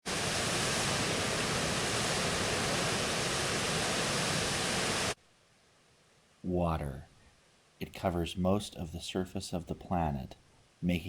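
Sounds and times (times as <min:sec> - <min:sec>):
rushing water roar: 0:00.0 - 0:05.2.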